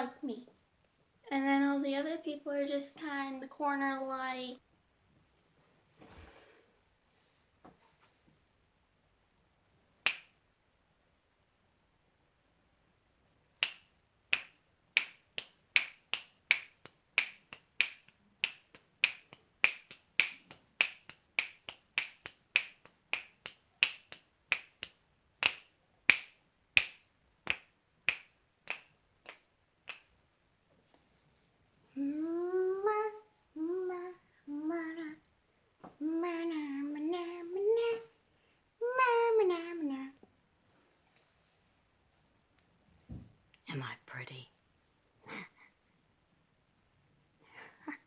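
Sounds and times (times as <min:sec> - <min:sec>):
finger snaps: 0:10.0 - 0:10.4, 0:13.6 - 0:30.1.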